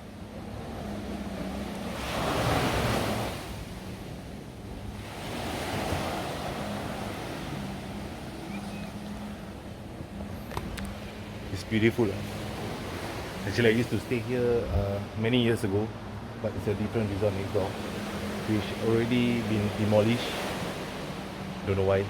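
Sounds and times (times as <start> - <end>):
sea surf washing ashore: 0.0 - 22.0
wind on microphone: 14.5 - 15.1.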